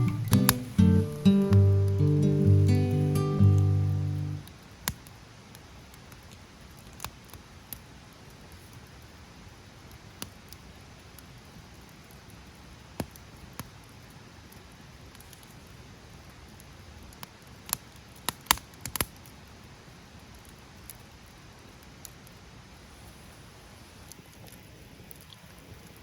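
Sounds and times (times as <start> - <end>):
sharp pops from fire: 0.0 - 9.0, 9.9 - 15.7, 16.3 - 19.4
faint steady hiss: 0.0 - 26.0
wood fire crackling: 0.0 - 26.0.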